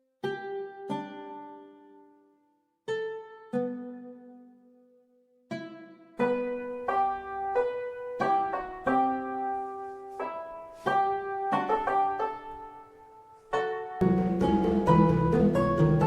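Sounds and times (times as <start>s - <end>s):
slow piano music: 6.2s - 16.0s.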